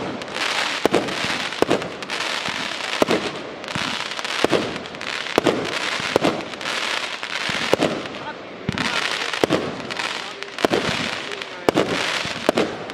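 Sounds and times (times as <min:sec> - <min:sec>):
fireworks hissing: 0:00.0 - 0:12.9
fireworks reports: 0:00.0 - 0:12.9.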